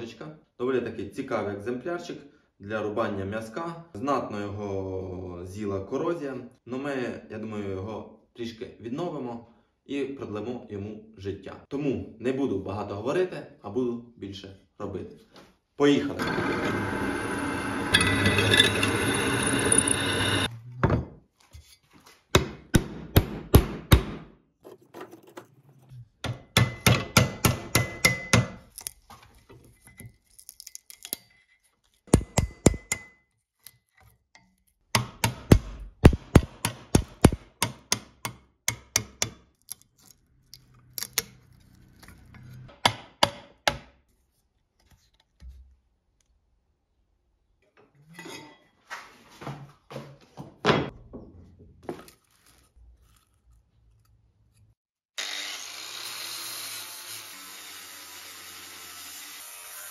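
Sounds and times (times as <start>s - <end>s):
thin ringing tone: 17.9s - 20.5s.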